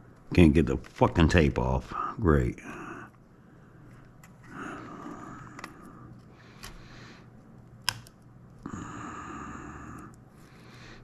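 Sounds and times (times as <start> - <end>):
small clicks: 7.8 - 8.6.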